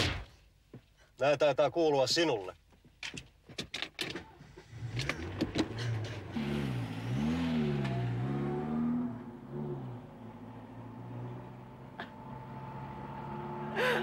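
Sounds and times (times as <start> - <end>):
car engine accelerating: 4.3 - 14.0.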